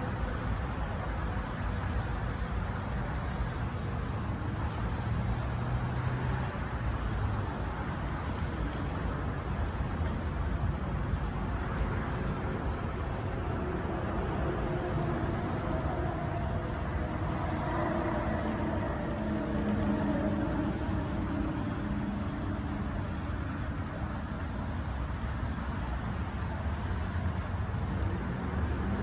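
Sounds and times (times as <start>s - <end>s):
distant road traffic rumble: 0.0s - 29.0s.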